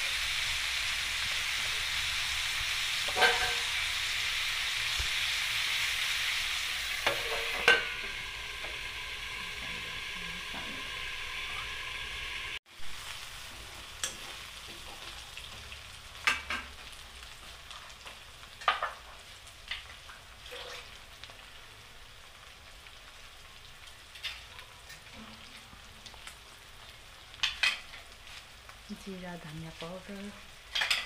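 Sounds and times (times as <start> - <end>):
chicken sizzling in wok: 0.0 - 31.0
spatula scraping metal wok: 2.8 - 3.8.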